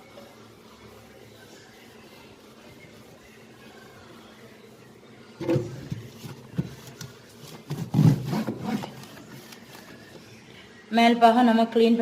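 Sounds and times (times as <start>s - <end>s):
damp towel rubbing inside fridge: 5.4s - 10.2s.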